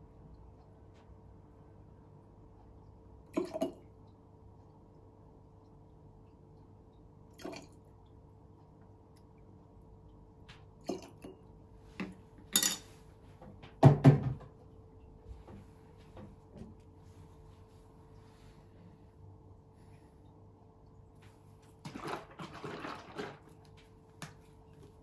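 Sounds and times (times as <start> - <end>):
faint steady hum: 0.0 - 25.0
spoon and glass jar clinking: 12.5 - 13.0.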